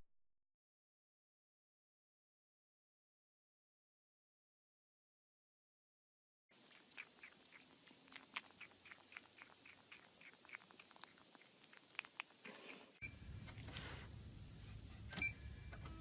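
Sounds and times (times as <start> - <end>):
kitten chewing plastic lid: 6.5 - 13.7
low hum: 13.0 - 16.0.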